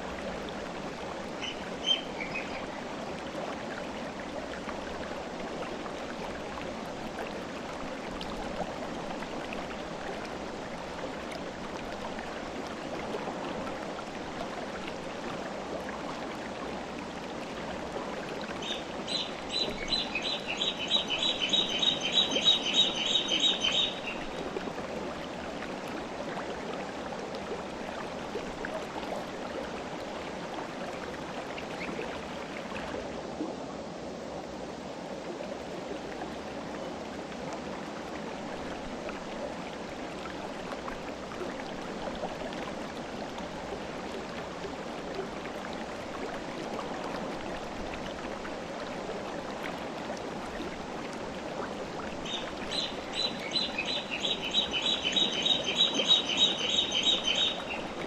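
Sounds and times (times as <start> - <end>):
river water rushing: 0.0 - 58.0
bird chirping: 18.6 - 24.3, 52.3 - 57.9.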